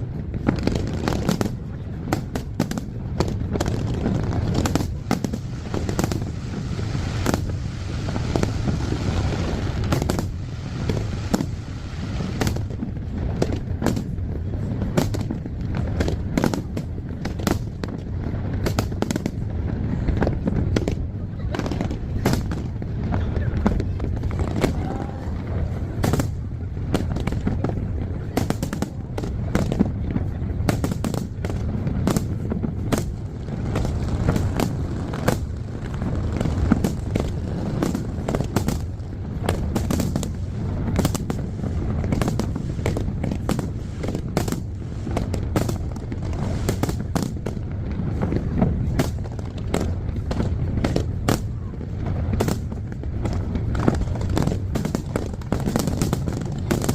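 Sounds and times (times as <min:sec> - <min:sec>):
fireworks bangs and crackles: 0:00.0 - 0:56.9
low rumble: 0:19.3 - 0:56.9.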